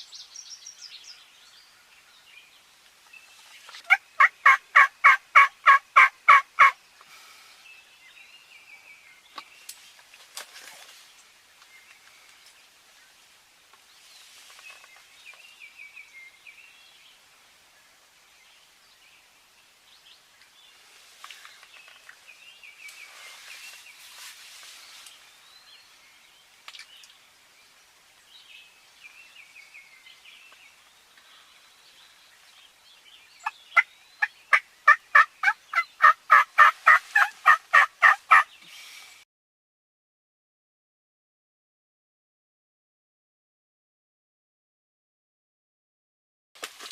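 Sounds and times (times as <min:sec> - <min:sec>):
distant turkey gobbles: 0:03.7 - 0:06.8, 0:33.4 - 0:38.5
quick repeated turkey yelps: 0:03.8 - 0:06.8, 0:34.5 - 0:38.5.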